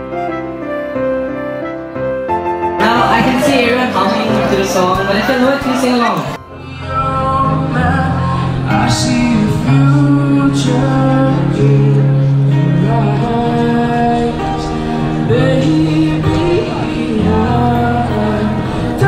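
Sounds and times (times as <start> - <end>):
acoustic guitar: 2.7 - 19.0
man singing: 6.2 - 19.0.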